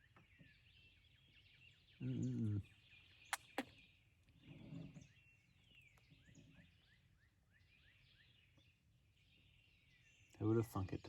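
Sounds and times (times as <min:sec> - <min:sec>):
small bird chirping: 0:00.0 - 0:10.9
faint low murmur: 0:02.0 - 0:02.8.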